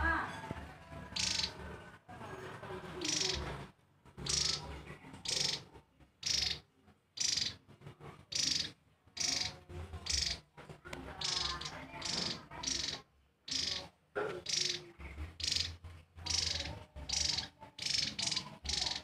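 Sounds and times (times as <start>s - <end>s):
bird high trilling call: 1.2s - 1.6s, 3.0s - 3.4s, 4.2s - 4.6s, 5.2s - 5.6s, 6.2s - 6.6s, 7.2s - 7.6s, 8.3s - 10.4s, 11.2s - 13.9s, 14.5s - 19.0s.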